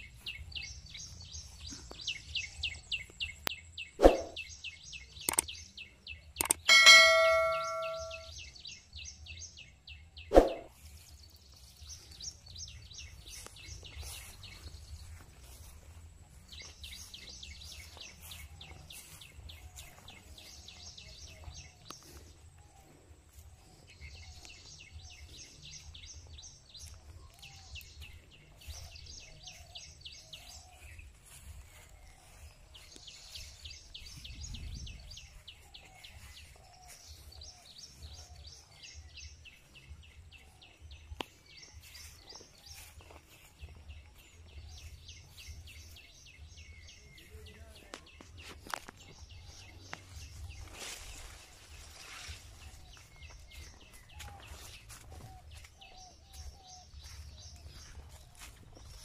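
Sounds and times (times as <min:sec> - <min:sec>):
bird high trills: 0:06.4 - 0:08.3
wind rumble on microphone: 0:33.2 - 0:36.6.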